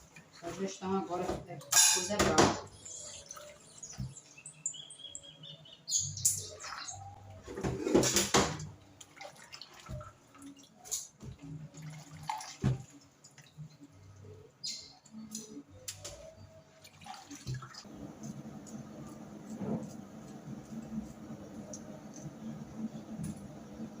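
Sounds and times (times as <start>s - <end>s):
dishes and pans clinking: 1.6s - 2.7s, 7.6s - 8.7s
water running: 7.9s - 13.8s, 16.8s - 24.0s.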